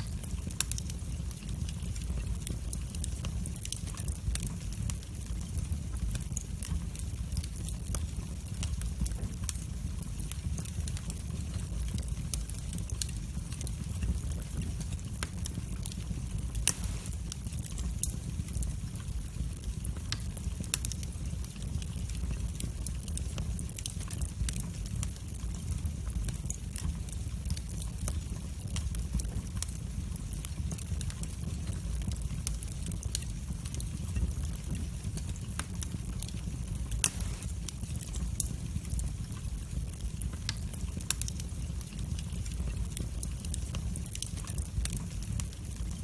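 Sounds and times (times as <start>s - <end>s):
fire crackles and snaps: 0.0s - 46.0s
low rumble of flames: 0.0s - 46.0s.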